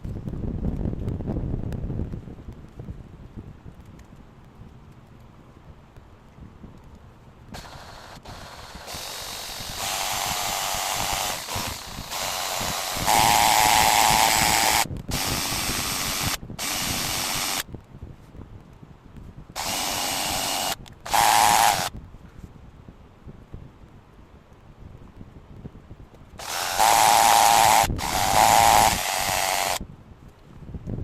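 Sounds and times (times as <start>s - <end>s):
electric drill bursts: 7.6s - 17.6s, 19.6s - 21.9s, 26.4s - 29.8s.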